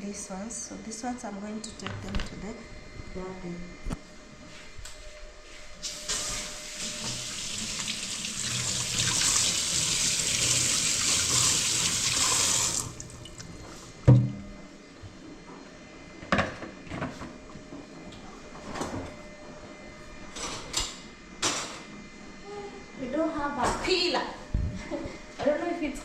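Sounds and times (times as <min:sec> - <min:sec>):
water running from a tap: 0:06.1 - 0:13.4.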